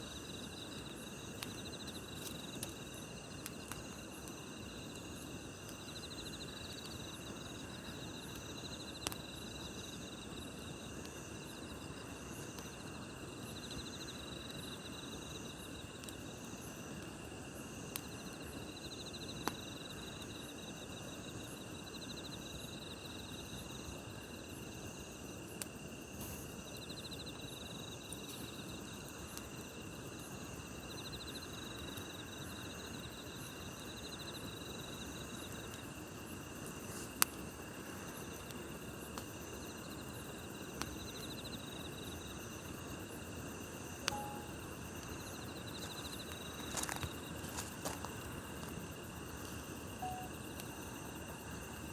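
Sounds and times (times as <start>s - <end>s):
campfire hissing: 0.0s - 51.9s
insects chirping and trilling: 0.0s - 51.9s.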